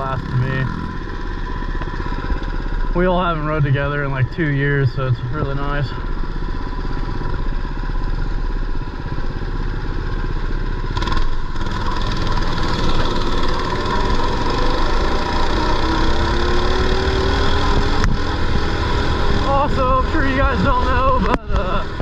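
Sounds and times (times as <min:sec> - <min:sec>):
mini bike engine revving: 0:00.0 - 0:02.7, 0:10.2 - 0:22.0.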